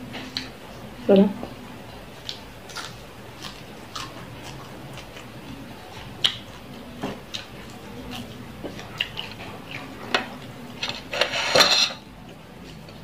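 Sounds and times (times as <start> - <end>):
person chewing: 0.2 - 0.6, 1.9 - 11.5.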